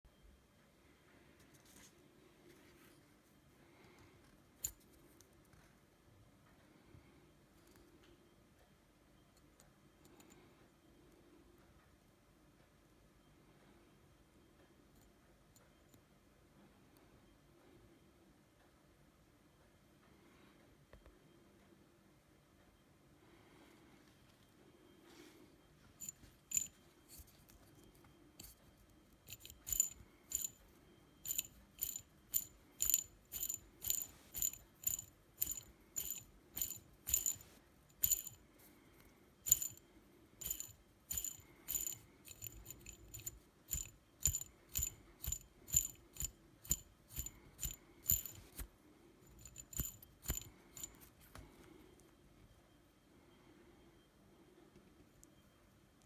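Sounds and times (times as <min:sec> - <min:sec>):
drone motor spinning with rattle: 0:26.0 - 0:27.5, 0:29.3 - 0:38.4, 0:39.5 - 0:39.8, 0:40.4 - 0:48.7, 0:49.3 - 0:51.0.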